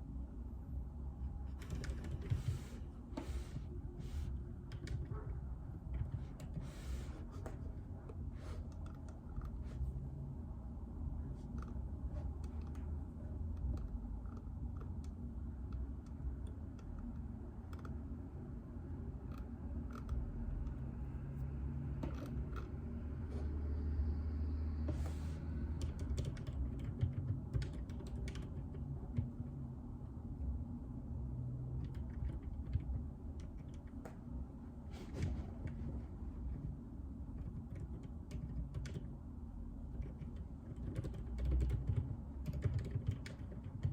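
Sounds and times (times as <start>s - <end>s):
low steady hum: 0.0s - 43.9s
soft keyboard typing: 1.3s - 3.6s, 4.2s - 9.8s, 11.3s - 18.3s, 19.1s - 20.8s, 22.0s - 23.0s, 25.7s - 29.6s, 31.6s - 34.4s, 35.2s - 39.2s, 39.9s - 43.9s.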